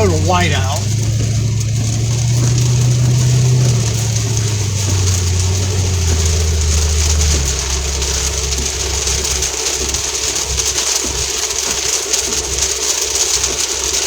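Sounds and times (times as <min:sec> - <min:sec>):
steady hiss: 0:00.0 - 0:13.9
car engine hum from inside cabin: 0:00.0 - 0:14.0.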